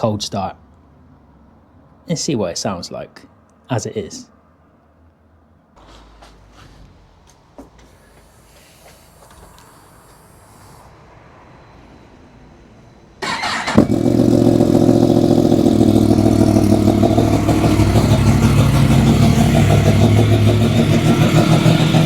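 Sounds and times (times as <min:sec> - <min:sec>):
motorcycle engine idling: 0:13.2 - 0:22.0
motorcycle starter turning over: 0:13.2 - 0:22.0.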